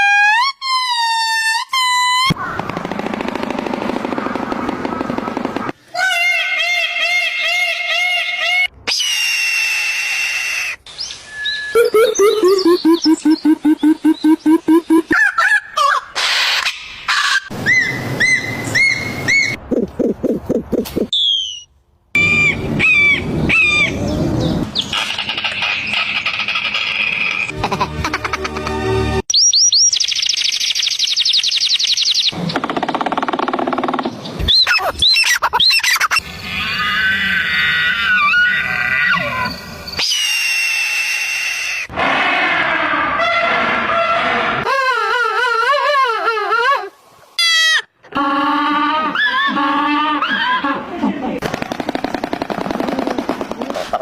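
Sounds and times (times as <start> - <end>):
bird chirps: 10.9 - 15.6, 21.0 - 27.5, 29.3 - 32.4
low pulsing bird calls: 11.0 - 16.0
arching bird whistles: 21.1 - 24.0.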